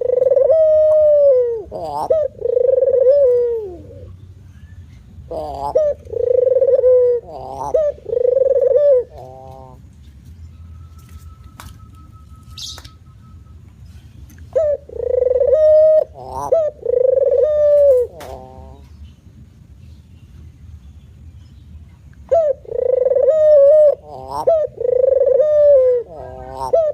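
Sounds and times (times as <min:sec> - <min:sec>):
dove cooing: 0:00.0 - 0:04.2, 0:05.3 - 0:09.9, 0:14.5 - 0:18.9, 0:22.3 - 0:26.9.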